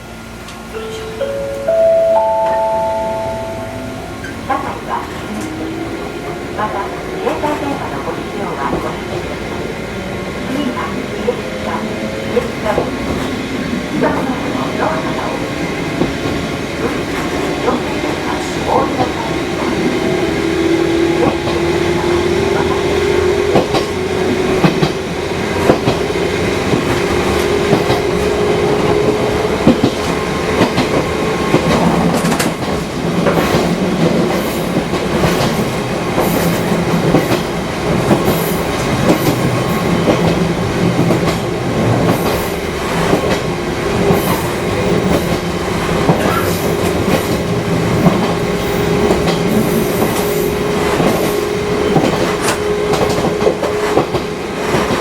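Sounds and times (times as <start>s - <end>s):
electric train whine: 0.0s - 55.0s
train wheels clacking over rail joints: 22.5s - 55.0s.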